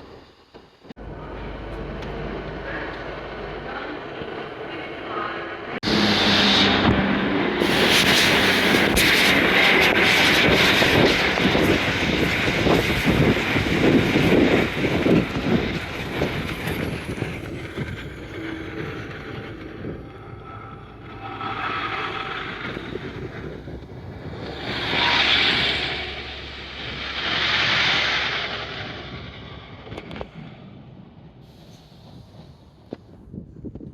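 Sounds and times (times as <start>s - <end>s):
train passing with wheel clatter: 0.0s - 33.6s
soft rushing swells: 15.8s - 29.9s.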